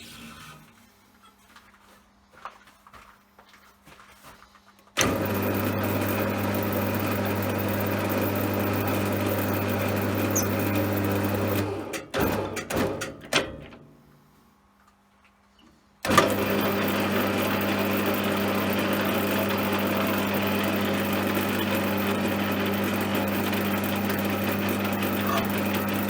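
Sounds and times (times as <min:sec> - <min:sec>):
lathe motor humming: 0:05.0 - 0:11.9, 0:16.1 - 0:26.0.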